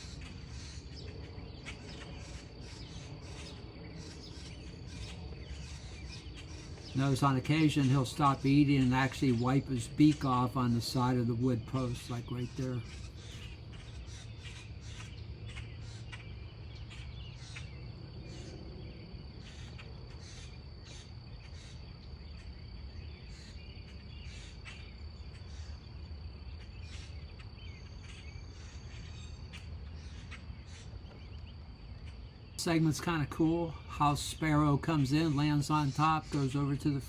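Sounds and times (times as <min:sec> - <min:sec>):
high-pitched insect drone: 0:01.7 - 0:16.0.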